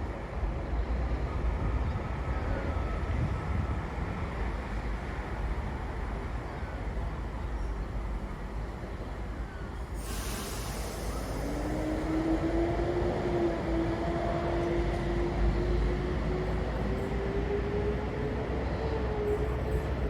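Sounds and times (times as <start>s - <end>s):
air hiss: 10.0s - 12.1s.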